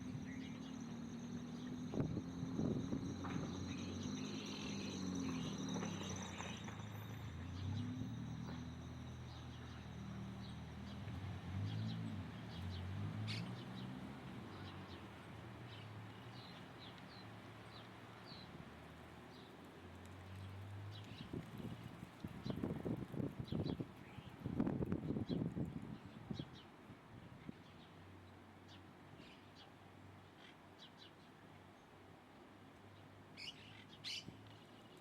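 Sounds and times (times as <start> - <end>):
small birds chirping: 0.0 - 13.9, 33.4 - 35.0.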